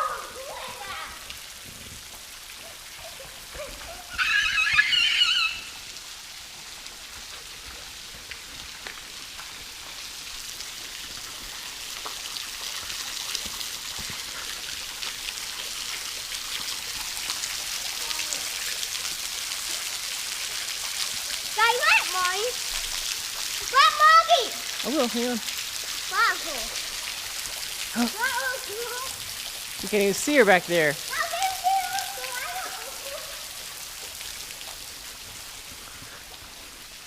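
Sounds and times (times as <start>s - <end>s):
small waterfall pattering: 0.0s - 37.0s
brief high-pitched cry: 4.1s - 5.7s.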